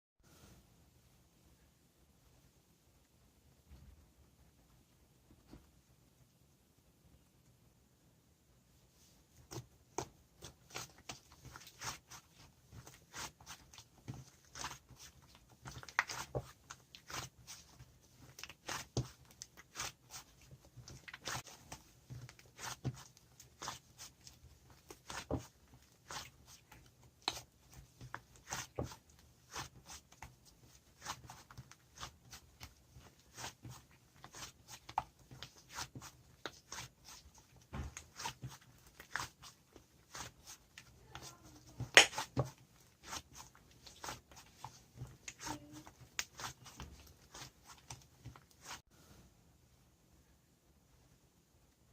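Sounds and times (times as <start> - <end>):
slime squished with crisp pops: 41.8 - 42.4.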